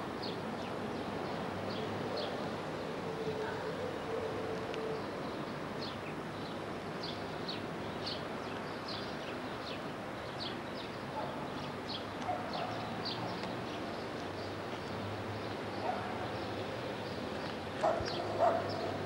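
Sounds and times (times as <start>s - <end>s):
small songbirds chirping: 4.9s - 19.0s.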